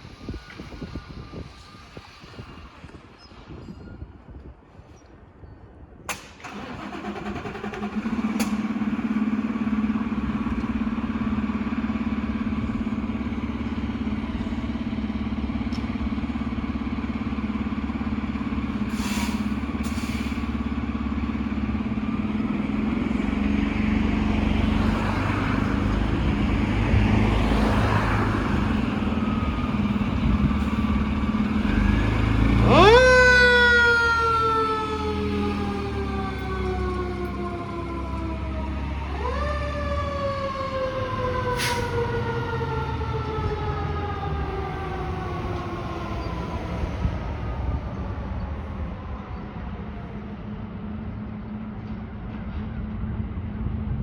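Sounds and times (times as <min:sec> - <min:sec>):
diesel truck engine running: 0:06.4 - 0:54.0
siren winding up and falling: 0:28.3 - 0:46.7.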